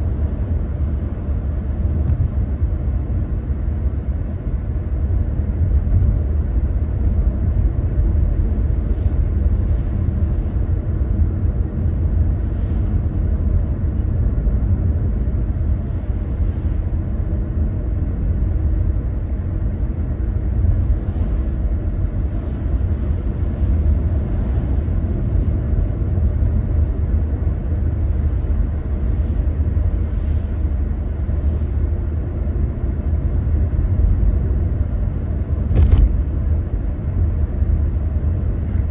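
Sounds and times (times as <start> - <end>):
car engine and tyre rumble: 0.0 - 38.9.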